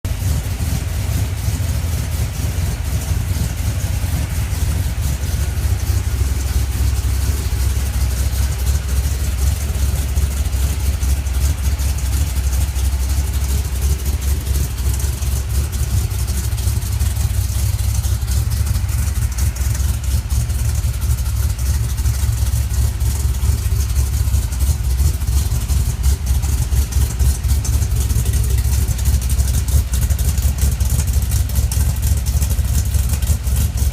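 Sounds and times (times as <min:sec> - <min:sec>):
vee eight engine idling: 0:00.0 - 0:33.9.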